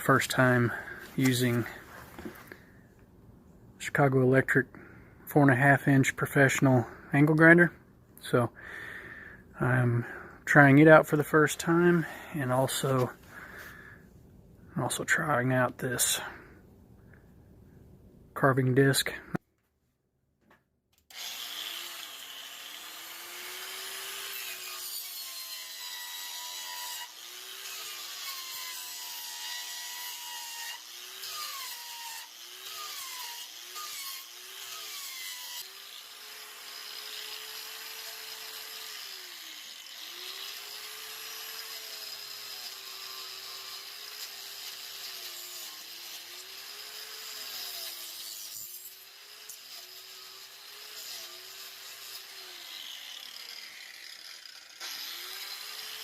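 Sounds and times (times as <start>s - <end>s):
angle grinder cutting wood: 0.0s - 2.6s, 21.1s - 56.0s.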